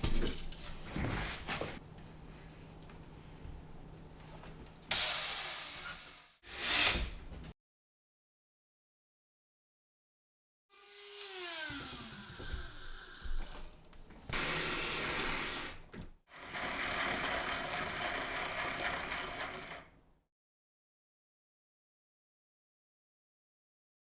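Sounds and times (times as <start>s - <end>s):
power tool cutting wood: 4.9s - 7.2s, 10.7s - 19.9s.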